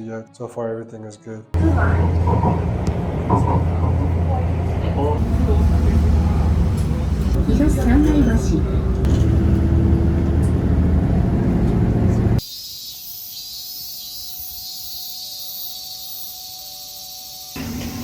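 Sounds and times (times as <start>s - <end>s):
vehicle engine rumbling: 1.6s - 12.4s.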